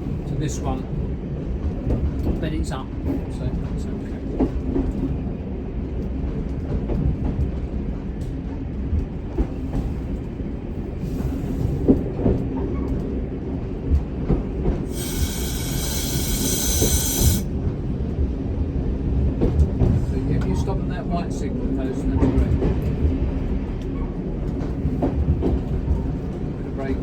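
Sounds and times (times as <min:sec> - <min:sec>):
diesel railcar rumble: 0:00.0 - 0:27.0
loud high-pitched squeal: 0:14.9 - 0:17.5.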